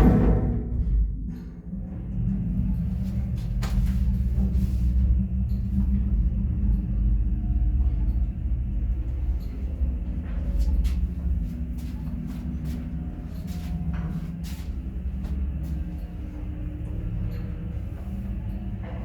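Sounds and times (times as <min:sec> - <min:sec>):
elevator drive rumbling and humming: 0:00.0 - 0:19.0.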